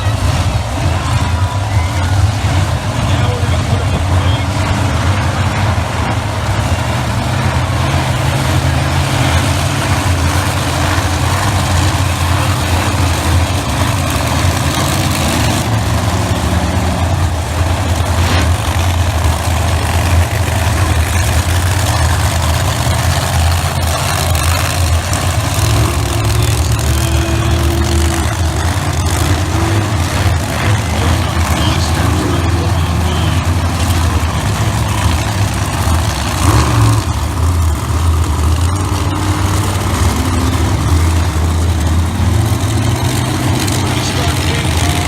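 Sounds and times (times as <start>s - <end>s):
truck engines idling: 0.0s - 45.0s.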